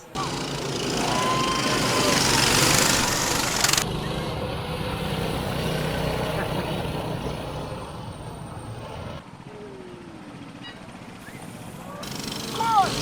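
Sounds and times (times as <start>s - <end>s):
small minibike engines running: 0.0s - 13.0s.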